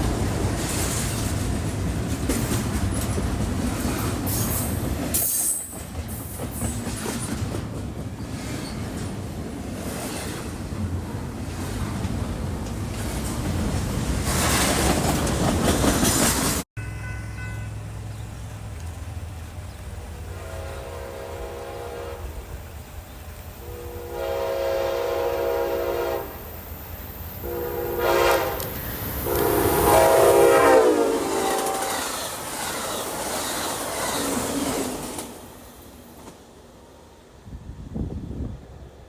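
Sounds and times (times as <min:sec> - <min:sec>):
train rumbling: 0:00.0 - 0:39.0
train air horn blasts: 0:20.0 - 0:22.6, 0:23.6 - 0:26.5, 0:27.4 - 0:32.2.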